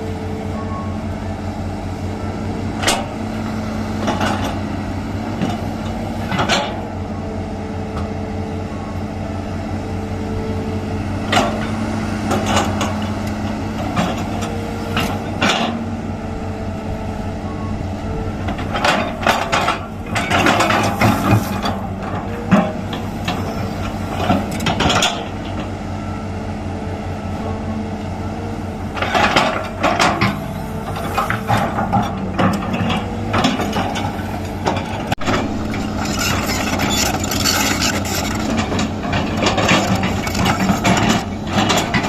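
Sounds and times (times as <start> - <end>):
diesel engine running: 0.0 - 42.0
metal clanks: 12.3 - 15.8, 18.4 - 25.7, 29.0 - 42.0
machine scraping: 12.3 - 25.4, 28.9 - 42.0.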